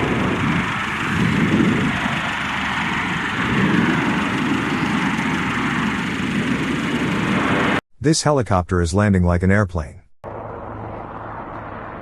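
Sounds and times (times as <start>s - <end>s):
turboprop engines running: 0.0s - 7.8s, 10.2s - 12.0s.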